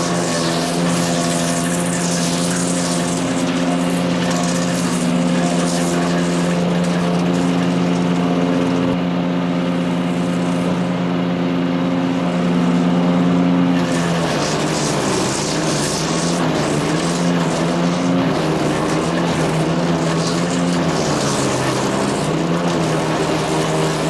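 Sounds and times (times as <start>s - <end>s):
chipper drum grinding hiss: 0.0s - 9.0s, 9.6s - 24.0s
wood chipper engine running: 0.0s - 24.0s.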